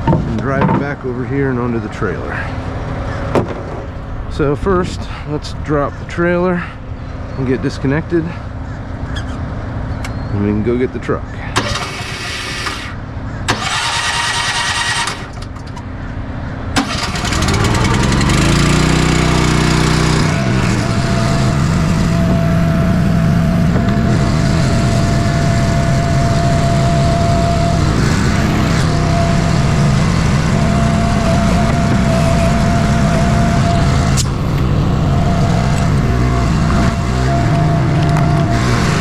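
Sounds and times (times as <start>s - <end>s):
engine starting and running: 11.4s - 39.0s
thin whine: 16.8s - 39.0s.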